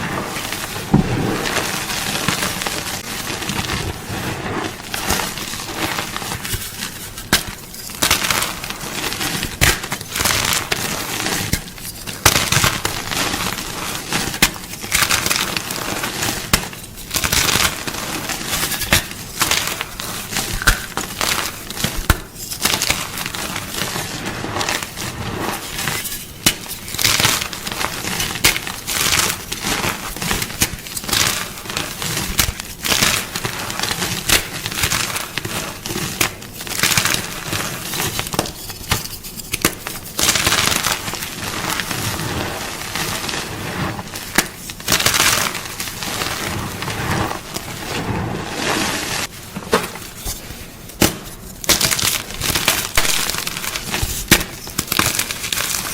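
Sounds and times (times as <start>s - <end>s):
chalk blocks crunching: 0.6s - 5.7s, 46.6s - 55.8s.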